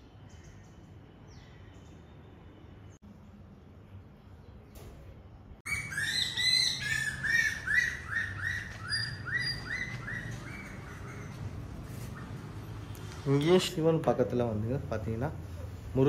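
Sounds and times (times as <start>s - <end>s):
birds chirping: 5.6s - 16.0s.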